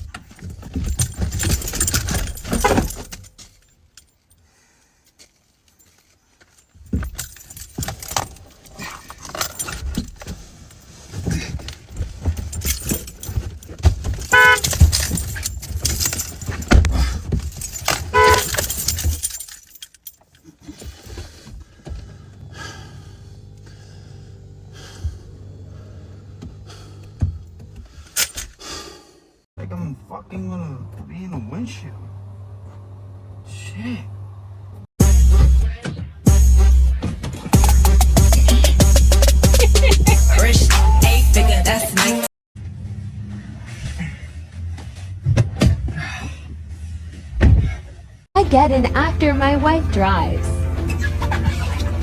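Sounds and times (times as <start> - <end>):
keys jangling: 0.0 - 4.4, 5.0 - 11.0, 11.6 - 21.2, 28.1 - 28.6
low steady hum: 48.4 - 52.0.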